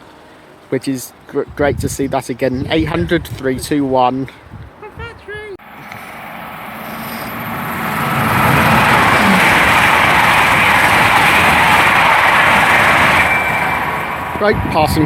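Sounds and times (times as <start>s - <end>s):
train passing at speed: 4.9s - 15.0s.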